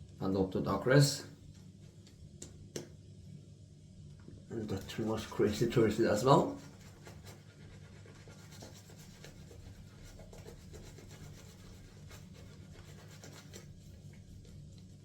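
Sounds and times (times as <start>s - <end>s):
steady low hum: 0.0s - 15.0s
shaving brush rubbing lather: 4.5s - 14.7s.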